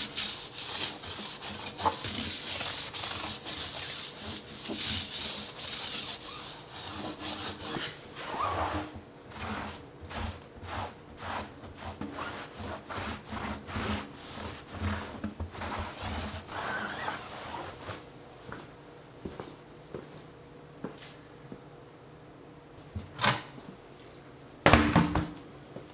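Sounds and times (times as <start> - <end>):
brush scrubbing tire: 0.0 - 8.7, 10.8 - 17.8.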